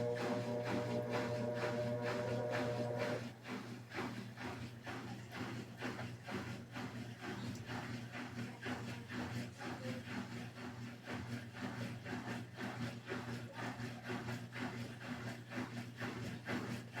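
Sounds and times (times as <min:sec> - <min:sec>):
mains hum: 0:00.0 - 0:03.2
rhythmic swishing rubbing: 0:00.0 - 0:03.2
washing machine motor running: 0:00.0 - 0:17.0.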